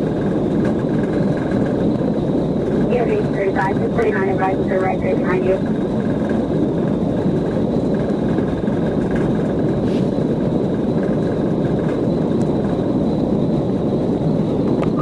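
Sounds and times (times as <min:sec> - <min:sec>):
faint steady whine: 0:01.9 - 0:06.0.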